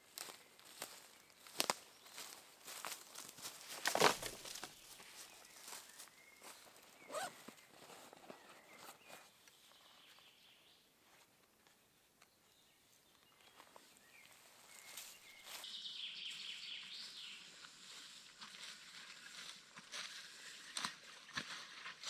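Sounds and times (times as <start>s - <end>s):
faint rustles and clicks: 0.2s - 9.7s
birds chirping and warbling: 0.6s - 10.8s.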